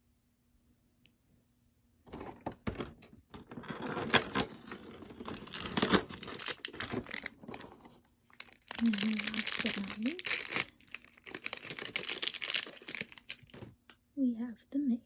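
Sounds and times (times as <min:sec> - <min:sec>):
packaging tearing and crinkling: 0:03.5 - 0:13.8.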